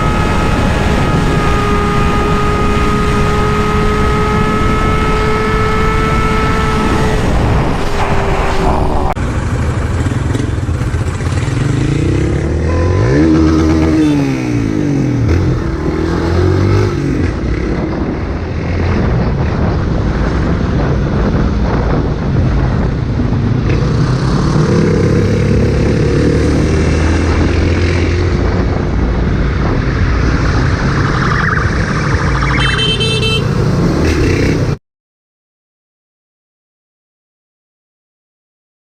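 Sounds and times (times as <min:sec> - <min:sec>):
motorcycle engine revving: 0:00.0 - 0:19.7, 0:23.6 - 0:34.8
short beep: 0:30.9 - 0:33.6.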